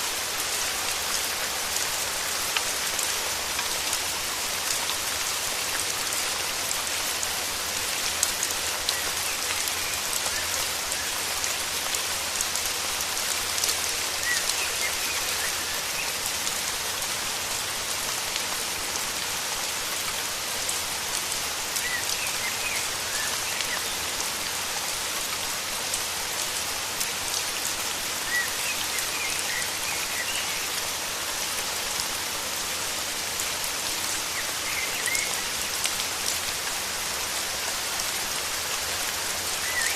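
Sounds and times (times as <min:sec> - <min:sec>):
steady rain pattering: 0:00.0 - 0:39.9
small birds chirping: 0:34.2 - 0:35.8.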